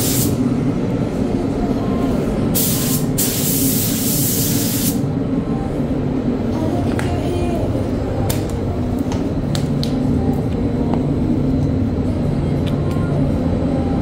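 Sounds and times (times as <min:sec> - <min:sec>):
paint spray gun hissing: 0:00.0 - 0:00.3, 0:02.6 - 0:05.0.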